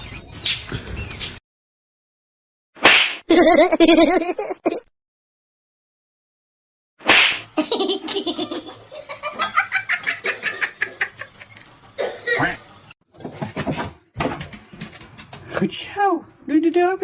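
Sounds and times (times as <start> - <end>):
person laughing hard: 3.3 - 4.8, 7.6 - 11.6.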